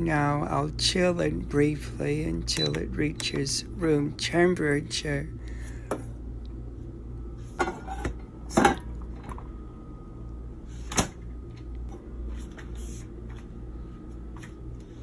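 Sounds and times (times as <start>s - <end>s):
steady low hum: 0.0s - 15.0s
pot and utensils clattering: 7.6s - 8.8s.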